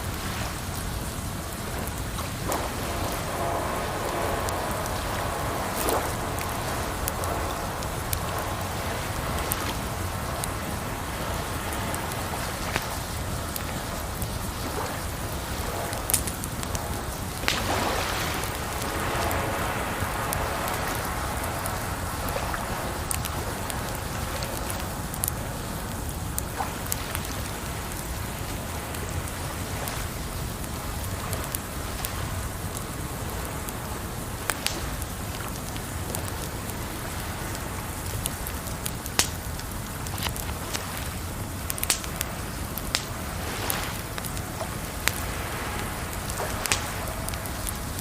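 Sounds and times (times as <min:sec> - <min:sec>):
campfire crackling and popping: 0:00.0 - 0:48.0
running water rushing: 0:00.0 - 0:48.0.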